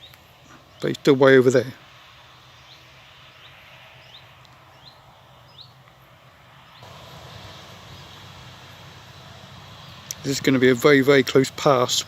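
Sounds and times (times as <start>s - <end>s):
distant farm machinery hum: 0.0s - 12.0s
steady rushing noise: 0.0s - 12.0s
small bird chirping: 2.5s - 5.9s.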